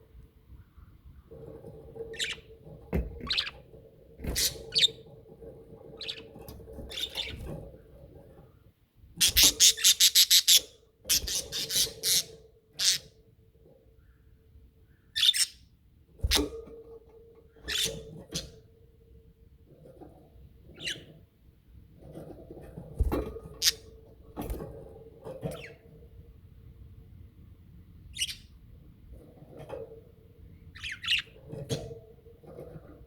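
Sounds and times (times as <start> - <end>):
budgerigars chirping: 6.9 - 7.4, 9.2 - 13.0, 15.2 - 15.6, 28.2 - 28.5, 30.8 - 31.4.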